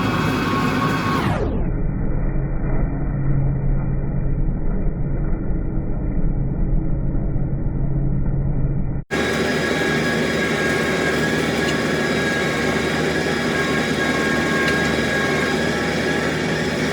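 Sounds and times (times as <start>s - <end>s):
tractor engine rumbling: 0.0s - 1.4s, 9.1s - 16.9s.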